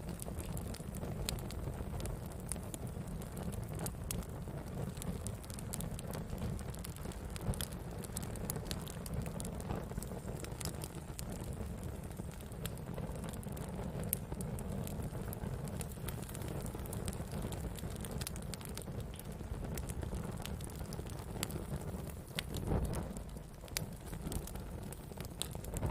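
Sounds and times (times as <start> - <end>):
fire crackling and popping: 0.0 - 25.9
fire flames rumbling: 0.0 - 25.9.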